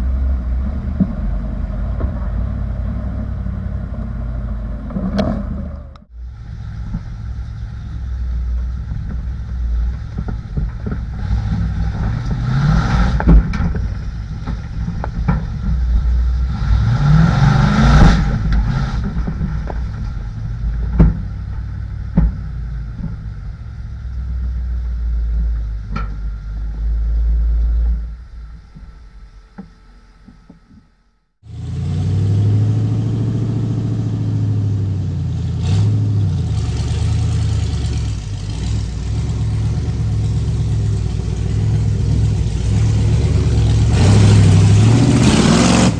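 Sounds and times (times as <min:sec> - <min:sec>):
truck engine revving: 0:00.0 - 0:28.7, 0:31.4 - 0:45.9
knocks and clatter: 0:06.8 - 0:16.6, 0:17.4 - 0:23.7.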